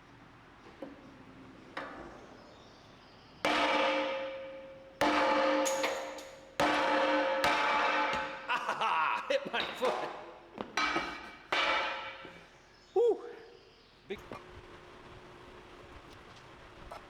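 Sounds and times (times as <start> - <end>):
hammer striking steel: 3.4 - 8.9, 9.5 - 12.6.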